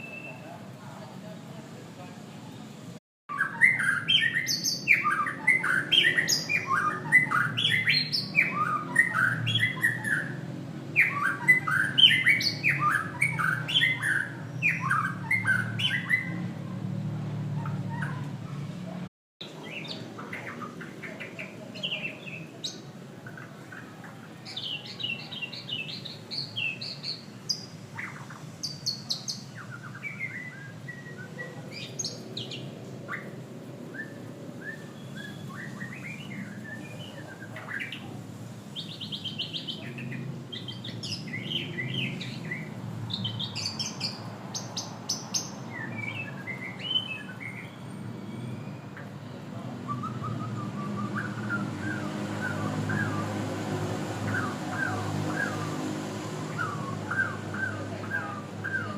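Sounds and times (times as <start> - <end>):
bird singing chirps and trills: 0.0 - 0.6, 3.3 - 18.7, 19.4 - 58.9.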